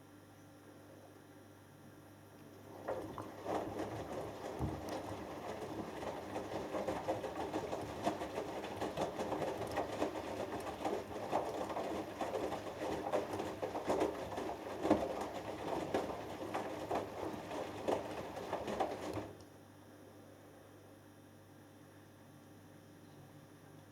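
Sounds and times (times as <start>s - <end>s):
washing machine laundry sloshing: 2.4s - 19.4s.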